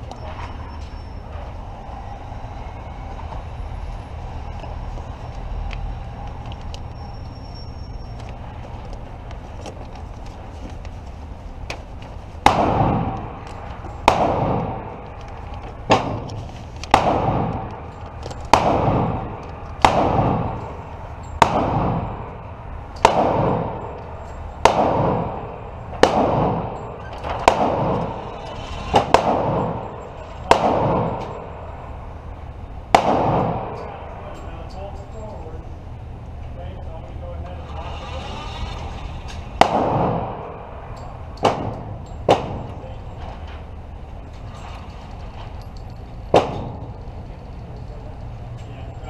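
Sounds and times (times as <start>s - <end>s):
pistol gunshots with echo: 12.4s - 32.2s, 32.8s - 34.7s, 39.5s - 43.1s, 46.3s - 47.1s.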